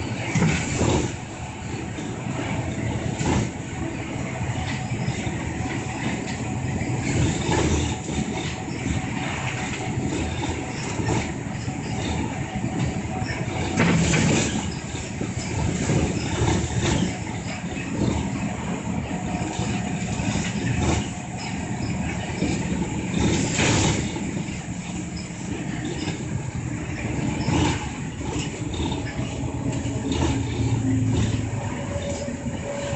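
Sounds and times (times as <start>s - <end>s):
bus engine and road noise: 0.0s - 32.9s.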